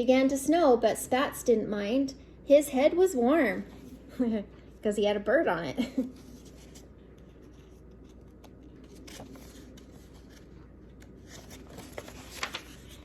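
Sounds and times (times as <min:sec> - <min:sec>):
paper pages rustling: 0:06.1 - 0:13.0
light clicks of pages: 0:07.2 - 0:13.0.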